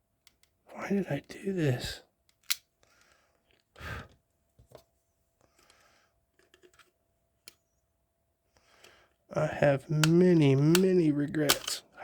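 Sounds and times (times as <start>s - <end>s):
plastic parts clicking and cracking: 0.2s - 0.6s, 2.2s - 3.7s, 10.0s - 12.0s.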